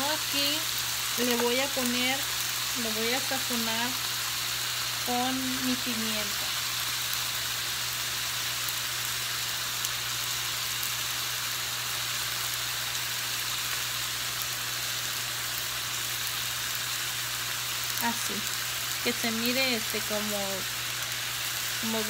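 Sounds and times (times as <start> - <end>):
chicken sizzling in a pan: 0.0 - 22.0.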